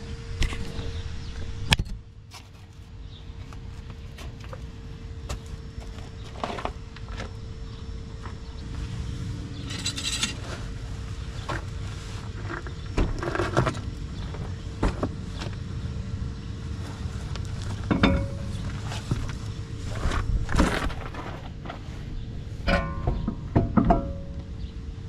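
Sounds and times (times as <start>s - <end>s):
metallic clinks of car wheel: 9.7s - 10.4s.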